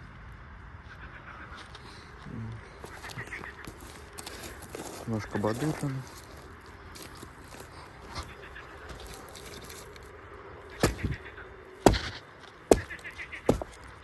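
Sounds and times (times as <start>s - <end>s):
sharp thumps: 10.8s - 11.2s, 11.8s - 13.9s.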